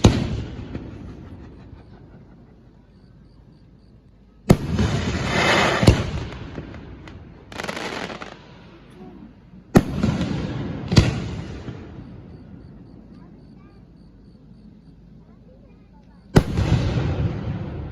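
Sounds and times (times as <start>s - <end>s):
hissing crackling firework spray: 4.5s - 8.9s.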